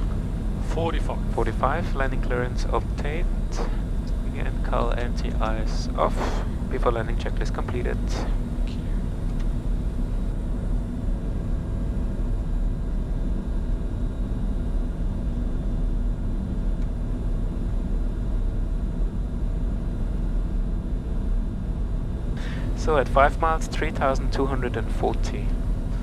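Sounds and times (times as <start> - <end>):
airflow rushing: 0.0 - 10.2
faint steady engine tones: 0.0 - 26.0.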